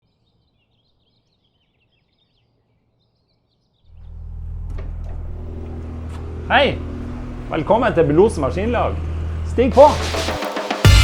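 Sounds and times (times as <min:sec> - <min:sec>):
faint bird chirps: 0:00.0 - 0:04.2
engine rumbling: 0:03.9 - 0:10.4.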